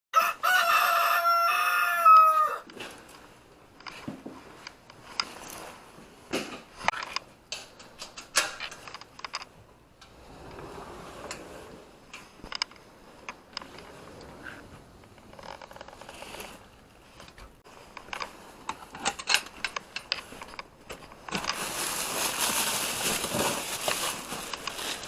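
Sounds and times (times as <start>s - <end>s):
rooster crowing: 0.2s - 2.7s.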